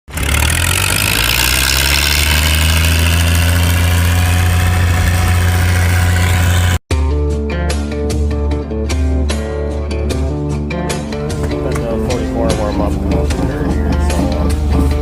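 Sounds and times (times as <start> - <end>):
engine running steadily: 0.1 - 6.8, 11.2 - 15.0.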